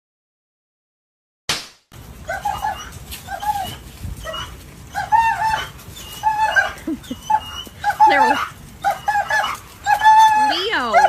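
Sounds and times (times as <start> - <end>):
dog whining: 2.3 - 11.0.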